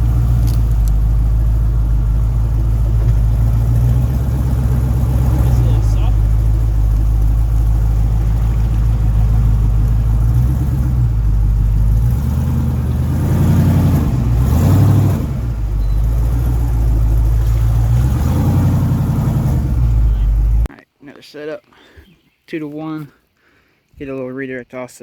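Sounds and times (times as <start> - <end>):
truck engine running: 0.0 - 20.7.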